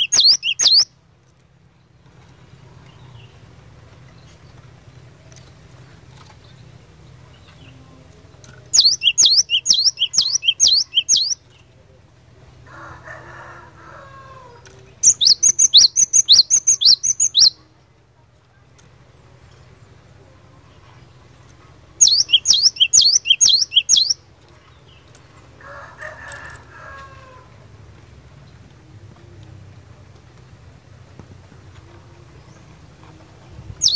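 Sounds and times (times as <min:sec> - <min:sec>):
bird singing sharp high notes: 0:00.0 - 0:00.9
bird singing sharp notes: 0:00.0 - 0:00.9, 0:08.8 - 0:11.4, 0:22.0 - 0:24.2.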